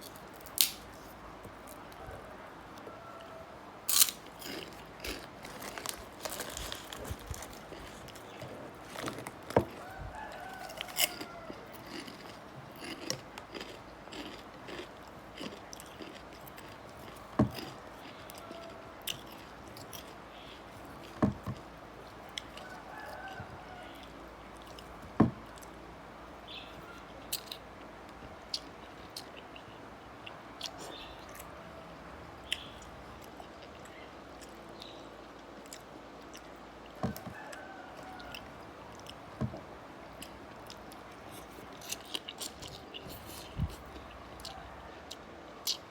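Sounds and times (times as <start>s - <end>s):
person chewing and crunching: 3.9s - 25.8s, 32.5s - 45.9s.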